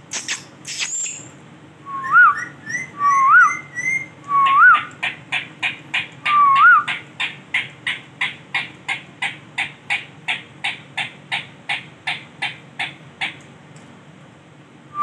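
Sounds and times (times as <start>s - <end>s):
parakeet whistle: 1.9s - 4.9s, 6.2s - 7.0s.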